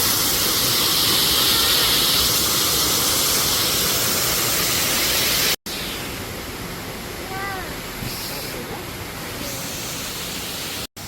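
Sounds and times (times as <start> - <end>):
rushing hiss of falling water: 0.0 - 10.9.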